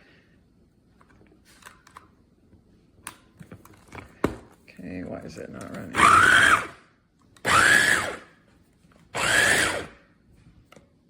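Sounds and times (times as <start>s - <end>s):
food chopper motor whine: 5.9s - 6.8s, 7.4s - 8.3s, 9.1s - 10.0s.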